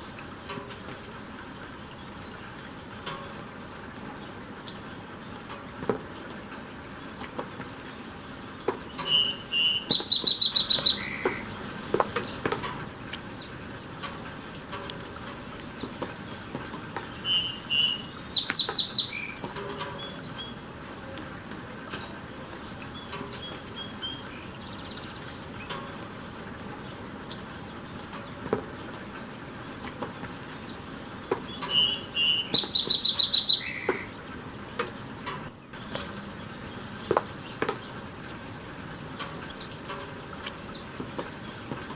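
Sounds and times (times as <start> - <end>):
rain falling: 0.0 - 41.9
bird chattering calls: 8.8 - 12.5, 17.1 - 21.2, 31.4 - 34.6.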